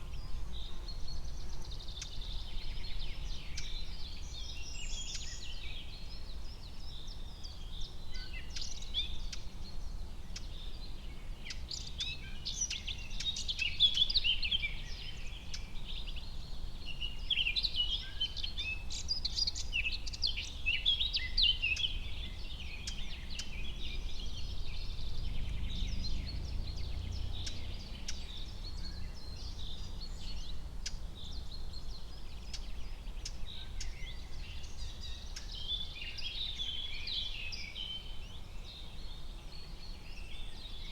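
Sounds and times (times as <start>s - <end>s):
small birds chirping and trilling: 0.0s - 40.9s
steady low rumble: 23.2s - 28.8s.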